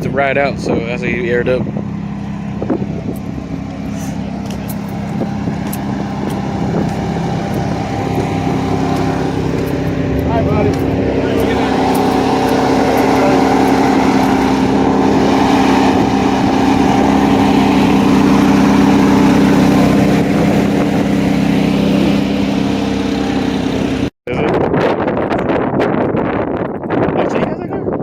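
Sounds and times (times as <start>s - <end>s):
car engine idling: 0.0s - 24.1s
rough outdoor noise: 0.0s - 25.7s.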